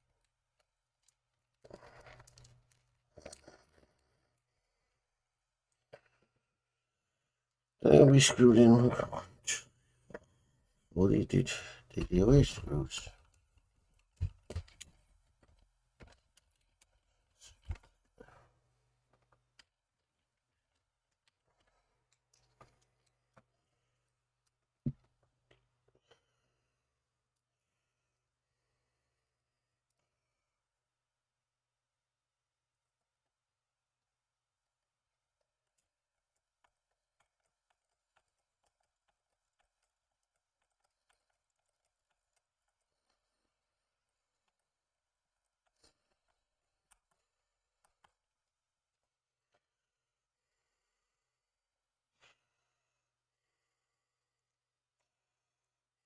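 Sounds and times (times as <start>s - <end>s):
small parts clicking and tapping: 0.0s - 4.5s, 11.9s - 18.2s, 19.1s - 23.6s, 35.4s - 49.6s.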